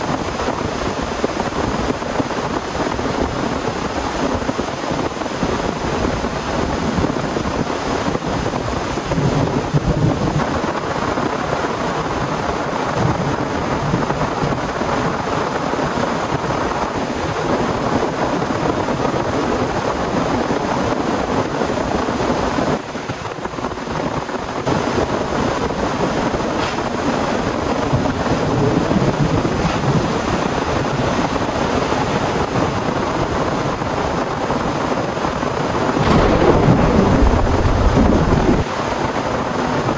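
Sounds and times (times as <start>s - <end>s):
heavy storm rain: 0.0s - 39.9s
gusting wind: 33.8s - 39.0s.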